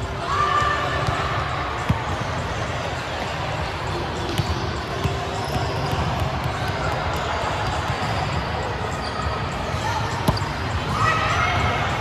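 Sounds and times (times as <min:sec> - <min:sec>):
court noise rumble: 0:00.0 - 0:12.0
shoe squeal: 0:07.6 - 0:11.6.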